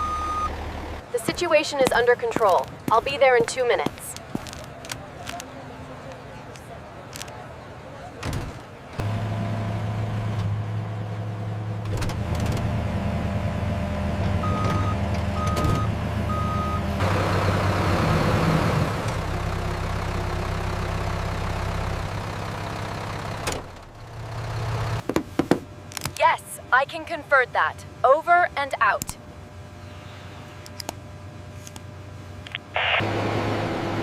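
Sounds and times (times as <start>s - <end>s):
short reversing beeps: 0.0s - 0.5s
road roller engine hum: 0.0s - 25.1s, 32.0s - 34.0s
hissing noise: 32.7s - 33.1s.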